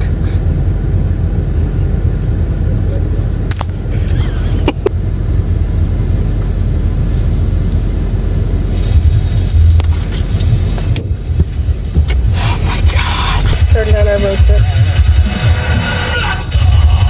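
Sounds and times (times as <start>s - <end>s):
car engine and road rumble: 0.0s - 17.0s
sharp clicks: 3.0s - 3.8s.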